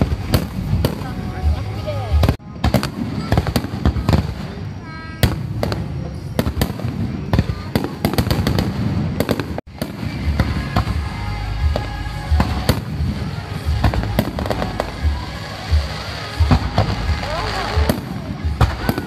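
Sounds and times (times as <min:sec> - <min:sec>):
music playing: 0:00.0 - 0:04.6, 0:09.2 - 0:19.0
fireworks bursting and booming: 0:00.0 - 0:19.0.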